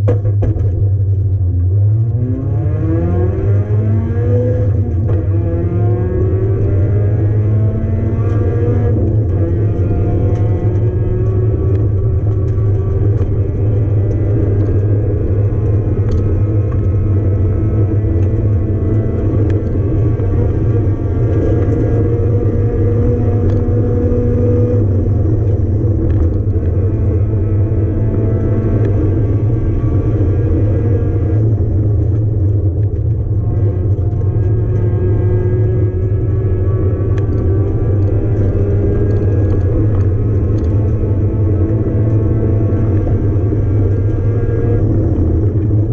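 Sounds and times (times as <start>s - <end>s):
racing car engine at full throttle: 0.0s - 45.9s.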